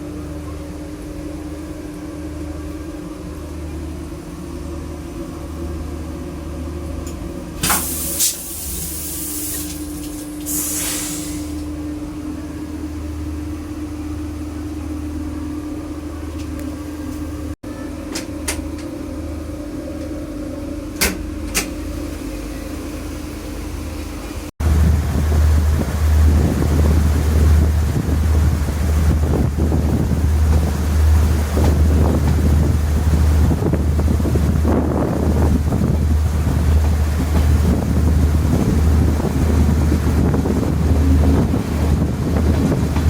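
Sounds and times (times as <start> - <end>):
train rumble and hum: 0.0 - 43.0
short hisses: 10.5 - 11.6.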